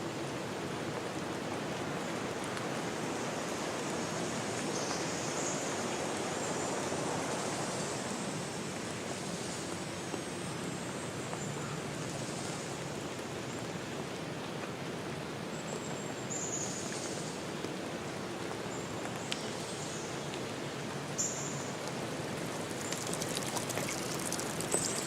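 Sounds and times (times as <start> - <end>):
steady rushing hiss: 1.8 - 10.4, 21.1 - 25.0.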